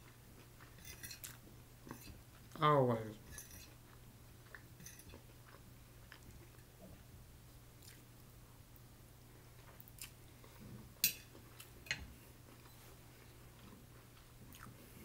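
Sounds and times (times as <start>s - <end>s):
faint chewing: 0.0s - 2.6s, 3.4s - 7.1s, 7.8s - 15.0s
metal fork set on plate: 4.8s - 5.2s, 11.0s - 11.3s.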